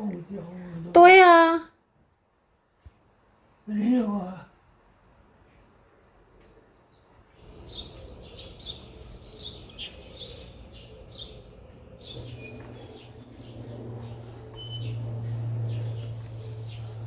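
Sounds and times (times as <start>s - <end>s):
low steady hum: 11.6s - 17.0s
small bird chirping: 12.0s - 17.0s.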